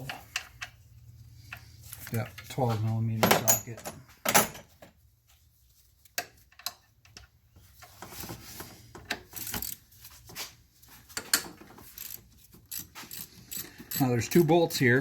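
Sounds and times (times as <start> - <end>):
ratchet clicking: 11.9 - 14.1.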